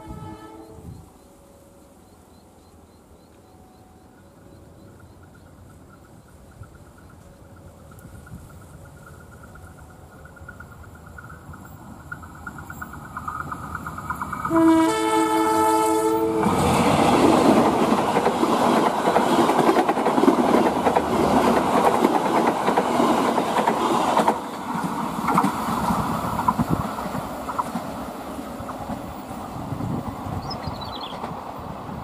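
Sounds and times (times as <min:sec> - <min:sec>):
locomotive horn: 0:00.0 - 0:01.0, 0:14.5 - 0:16.9
train wheels clattering on rails: 0:04.2 - 0:32.0.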